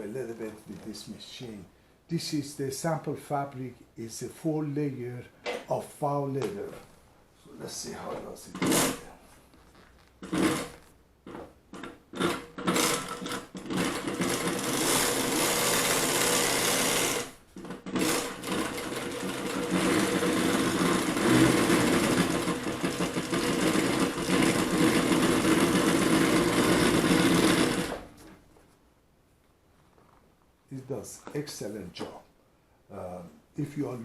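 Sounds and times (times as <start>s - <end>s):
industrial sewing machine stitching: 8.5s - 9.0s, 10.2s - 28.2s.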